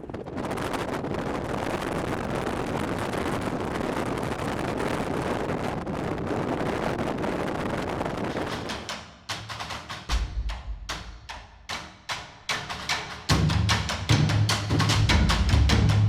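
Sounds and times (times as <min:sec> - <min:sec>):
storm wind buffeting microphone: 0:00.0 - 0:09.4.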